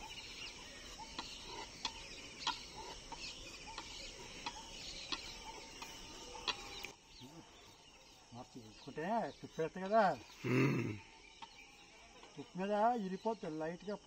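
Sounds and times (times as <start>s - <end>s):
birds chirping: 0.0s - 14.0s
short sharp bird calls: 9.4s - 11.2s.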